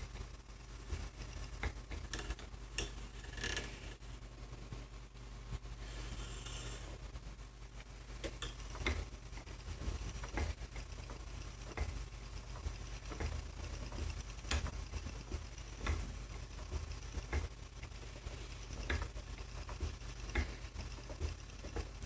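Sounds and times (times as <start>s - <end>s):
spinning wheel clicks: 0.0s - 3.9s, 8.1s - 22.0s
steady low hum: 0.0s - 22.0s.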